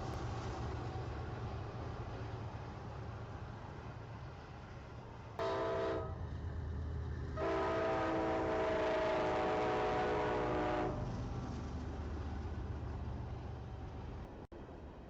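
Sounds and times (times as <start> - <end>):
low rumble of passing train: 0.0 - 15.0
locomotive air horn blasts: 5.4 - 6.2, 7.4 - 11.0.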